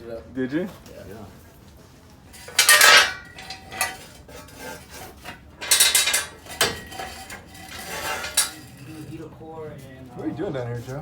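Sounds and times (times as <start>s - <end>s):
faint metallic ringing: 2.3s - 9.3s
metal scraping and rubbing: 2.3s - 9.3s.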